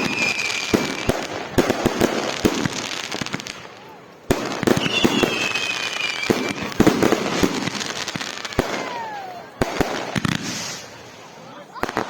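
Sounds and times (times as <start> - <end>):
falling firework whistles: 0.0 - 1.4, 4.4 - 11.2
firecrackers crackling: 0.0 - 12.0
fireworks bangs: 0.0 - 12.0.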